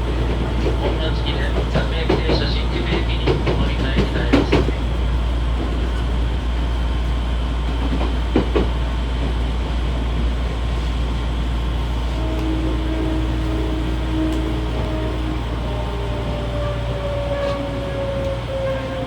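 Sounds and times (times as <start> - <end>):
wheels clacking over rail joints: 0.0 - 4.9
train wheels rumbling on rail: 0.0 - 19.0.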